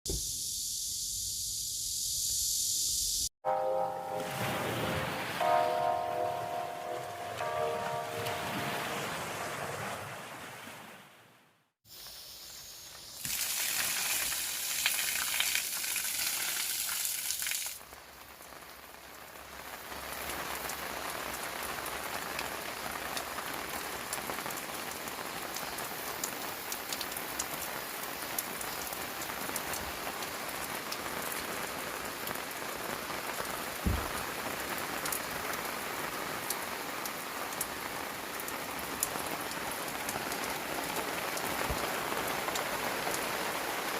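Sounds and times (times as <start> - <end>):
rain falling: 3.5 - 10.6, 12.0 - 43.9
raindrops ticking on surface: 12.8 - 43.9.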